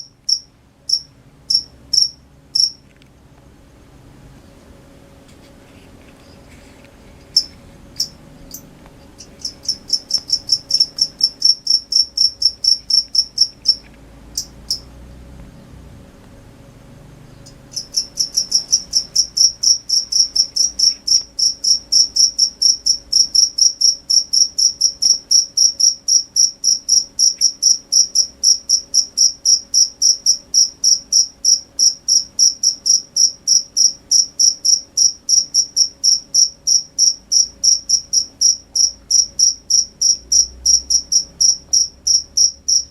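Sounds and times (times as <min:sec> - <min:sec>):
cricket chirping: 0:00.0 - 0:02.9, 0:07.4 - 0:15.7, 0:17.3 - 0:42.9.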